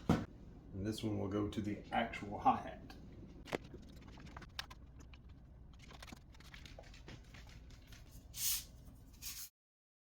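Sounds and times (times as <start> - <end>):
cables clicking and rustling: 3.4 - 8.2.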